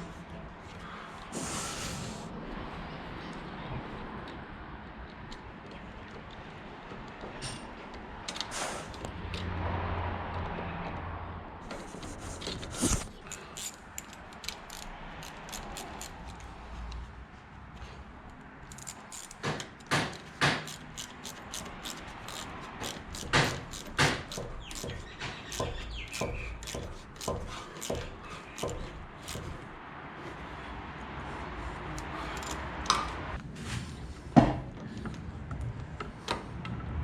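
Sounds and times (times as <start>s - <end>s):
metallic clicks of hand tools: 13.0s - 17.0s, 18.3s - 29.6s, 31.9s - 33.2s.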